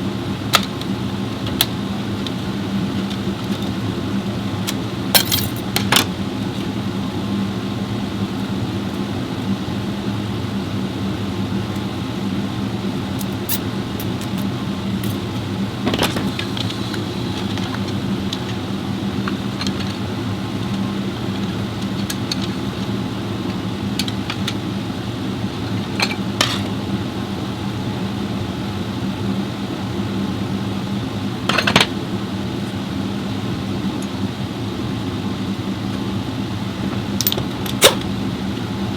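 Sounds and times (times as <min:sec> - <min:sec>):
engine humming: 0:13.2 - 0:27.2.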